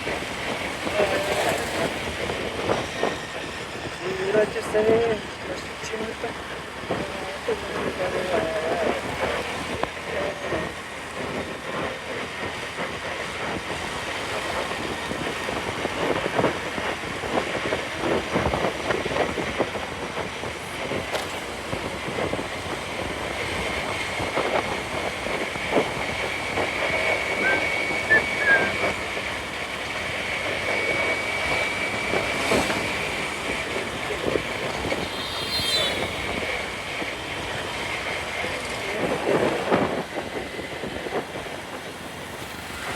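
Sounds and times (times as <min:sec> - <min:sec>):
wind road and engine noise: 0:00.0 - 0:42.9
thin high whine: 0:34.8 - 0:36.7.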